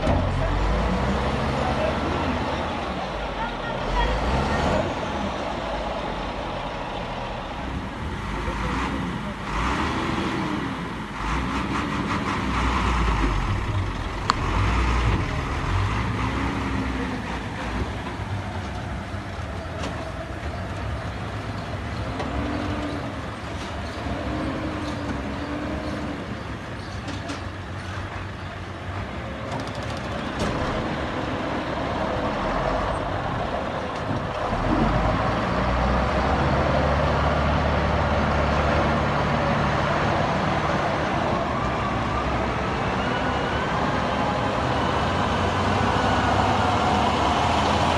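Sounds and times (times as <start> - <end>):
heavy diesel machinery drone: 0.0 - 47.9.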